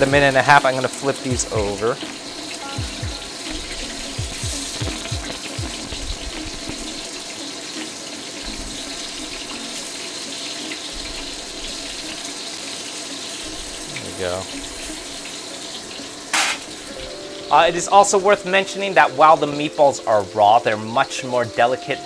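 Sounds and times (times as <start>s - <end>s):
meatballs sizzling in oil: 0.0s - 21.7s.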